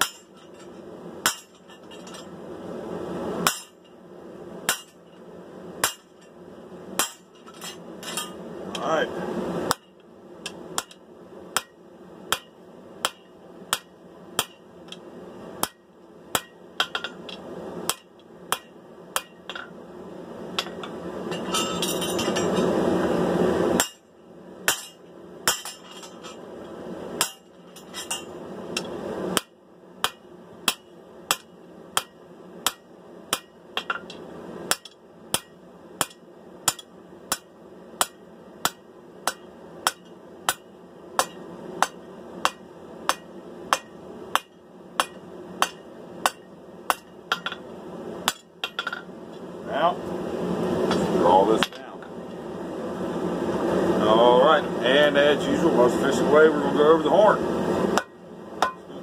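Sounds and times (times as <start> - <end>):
hammer ringing on anvil: 58.0 - 58.9.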